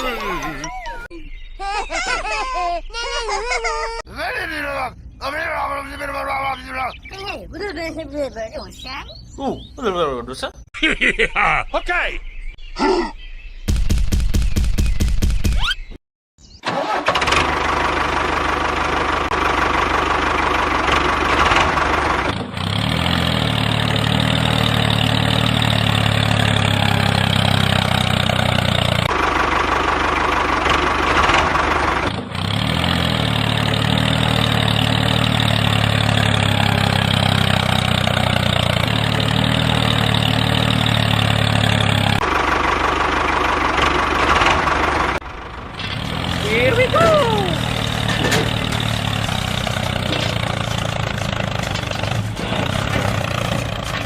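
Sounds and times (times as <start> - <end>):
small engine running: 16.7 - 54.0.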